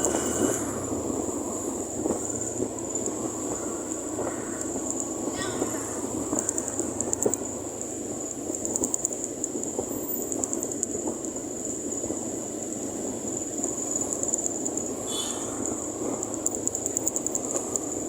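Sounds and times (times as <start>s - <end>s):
high-pitched whine: 0.0s - 2.4s
scattered clicks: 6.4s - 7.5s, 8.5s - 9.6s.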